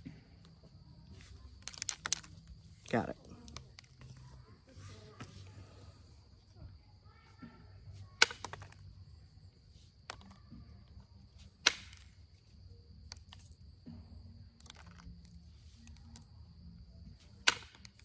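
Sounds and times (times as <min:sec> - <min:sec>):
stone flakes snapping off: 0:11.6 - 0:12.1, 0:17.4 - 0:18.0.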